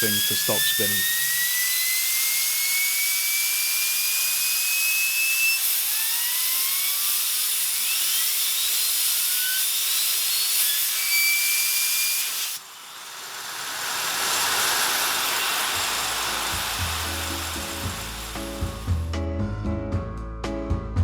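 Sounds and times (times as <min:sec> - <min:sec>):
air blower hissing: 0:00.0 - 0:01.6, 0:12.2 - 0:19.1
fidget spinner whistling and whirring: 0:00.0 - 0:18.9
background music: 0:16.3 - 0:21.0.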